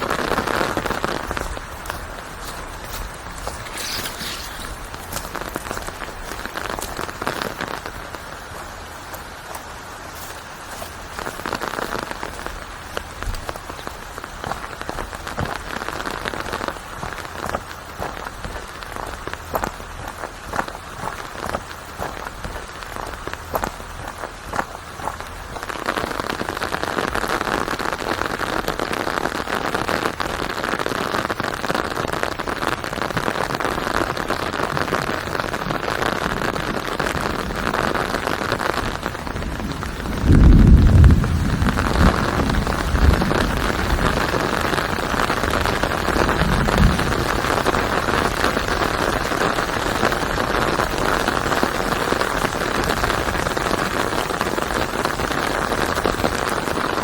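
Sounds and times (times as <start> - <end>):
rain falling on a surface: 0.0 - 57.0
loud low rumble: 39.6 - 44.0.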